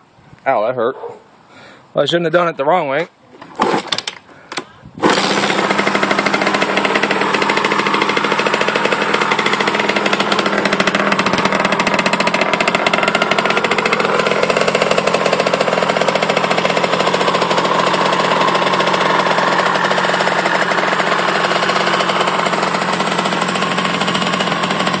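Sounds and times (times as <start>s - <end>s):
two-stroke engine idling: 5.0s - 25.0s.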